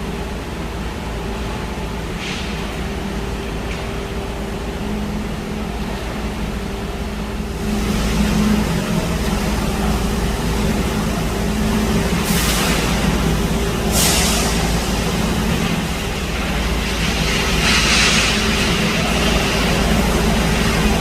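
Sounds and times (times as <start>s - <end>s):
diesel engine running: 0.0s - 21.0s
short burst of hiss: 13.9s - 14.8s.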